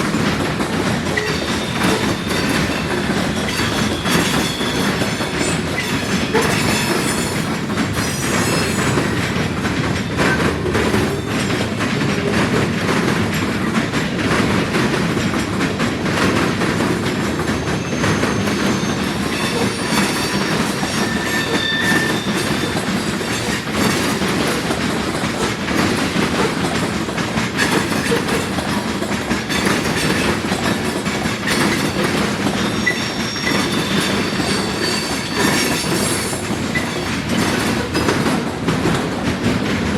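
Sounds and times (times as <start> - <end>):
train wheels clacking over crossing: 0.0 - 39.9
high wheel squeals: 1.2 - 9.2, 17.6 - 23.7, 31.7 - 37.1.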